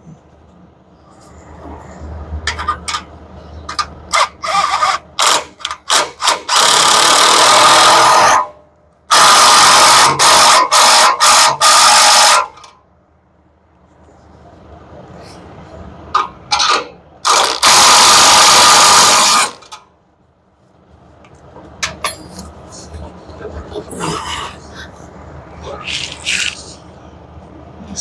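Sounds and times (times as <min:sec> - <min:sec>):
handheld power tool running: 0:04.4 - 0:08.5, 0:17.3 - 0:19.6.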